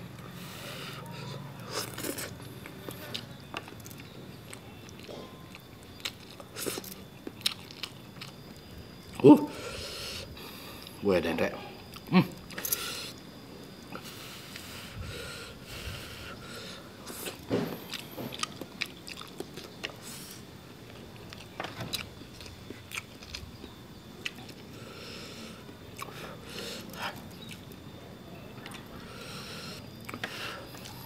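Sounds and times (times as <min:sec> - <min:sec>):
person chewing and biting: 0:01.6 - 0:09.2, 0:17.1 - 0:20.4, 0:21.2 - 0:23.5, 0:24.2 - 0:24.7, 0:25.9 - 0:26.2, 0:27.4 - 0:27.8
small crunches and clicks: 0:01.6 - 0:09.2.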